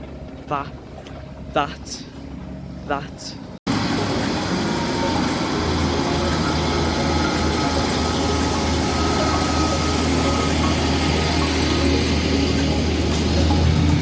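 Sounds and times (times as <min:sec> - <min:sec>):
train diesel engine idling: 0:02.9 - 0:14.0.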